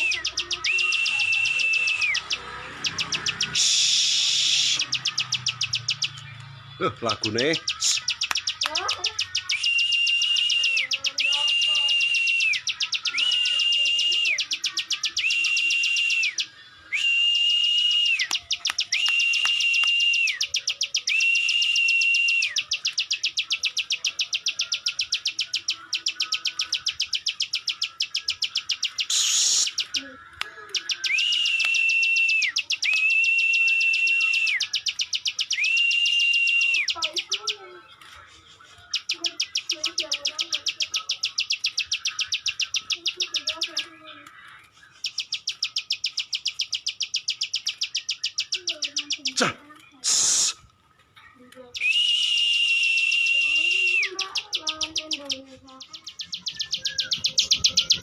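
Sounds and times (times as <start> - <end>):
bird high whistled notes: 0.0 - 6.6, 7.2 - 30.1, 30.7 - 37.7, 50.0 - 50.7, 51.8 - 58.0
songbird rapid clicking trill: 0.0 - 6.6, 7.2 - 16.5, 17.5 - 38.1, 38.9 - 50.0, 51.6 - 58.0.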